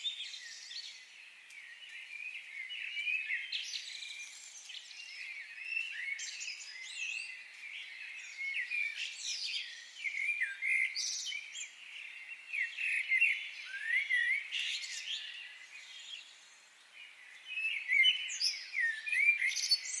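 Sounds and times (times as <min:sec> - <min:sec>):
wild birds singing and calling: 0:00.0 - 0:20.0.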